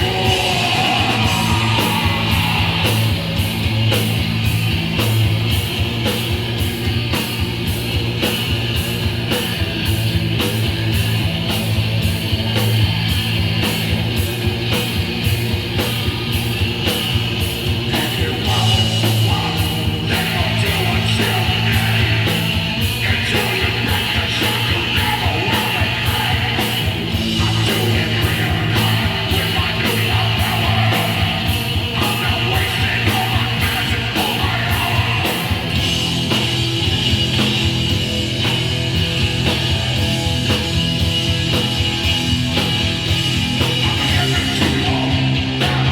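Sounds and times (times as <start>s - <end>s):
shouted vocals: 0.0s - 3.9s, 17.9s - 35.7s
bass guitar: 0.0s - 45.9s
distorted electric guitar: 0.0s - 45.9s
drums with rapid cymbal strokes: 0.0s - 45.9s.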